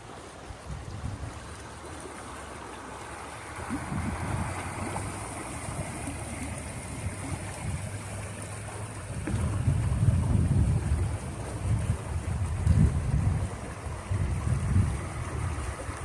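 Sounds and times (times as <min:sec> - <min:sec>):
rushing water: 0:00.0 - 0:16.0
wind on microphone: 0:00.6 - 0:01.6, 0:03.5 - 0:16.0.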